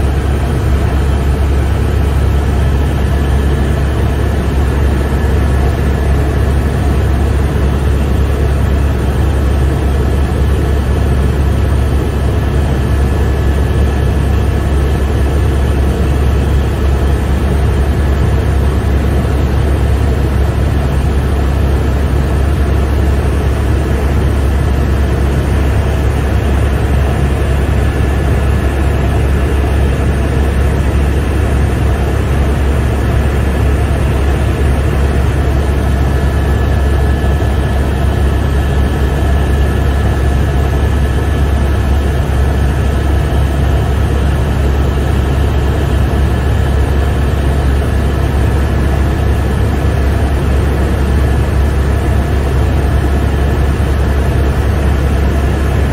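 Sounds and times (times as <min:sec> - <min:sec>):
helicopter rotor drone: 0:00.0 - 0:55.9.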